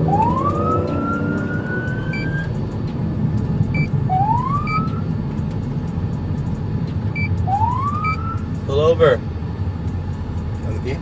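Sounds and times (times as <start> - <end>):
police siren wailing: 0.0 - 2.5, 4.1 - 5.0, 7.4 - 8.4
engine and road noise: 0.0 - 11.0
short electronic beeps: 0.8 - 2.5, 3.7 - 4.0, 7.2 - 7.4.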